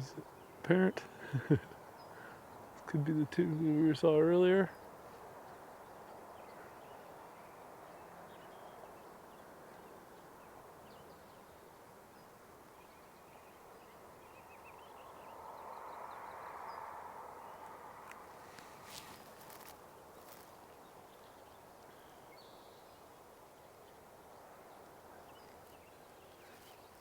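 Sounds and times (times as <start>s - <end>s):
faint bird chirps: 18.2s - 27.0s.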